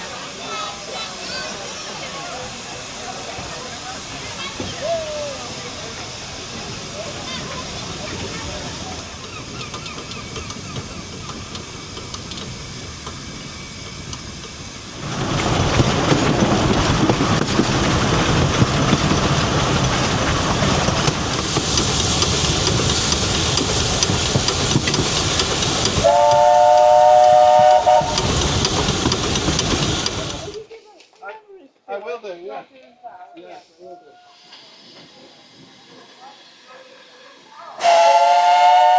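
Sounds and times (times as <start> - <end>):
steam locomotive rumble and hiss: 0.0 - 30.7, 33.7 - 38.9
steam whistle chord: 26.0 - 28.2, 37.8 - 38.9.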